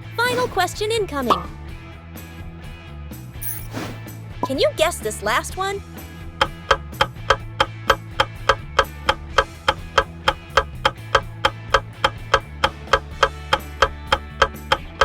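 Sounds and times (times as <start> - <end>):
low bass background music: 0.0 - 15.0
clock-like timer ticks: 6.4 - 15.0.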